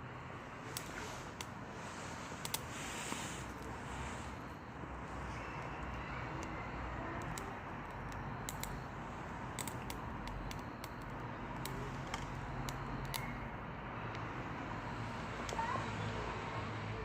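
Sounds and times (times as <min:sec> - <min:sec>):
branches burning in a stove: 0:00.0 - 0:17.0.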